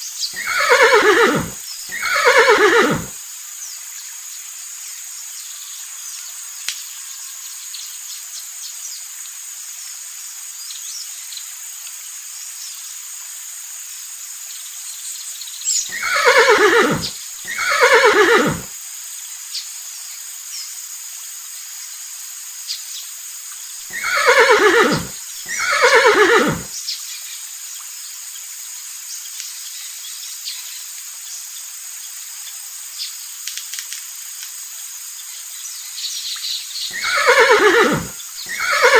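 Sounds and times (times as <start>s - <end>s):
steady hiss: 0.0s - 38.9s
horse whinnying: 0.4s - 3.2s, 15.9s - 18.7s, 23.9s - 26.7s, 36.9s - 38.9s.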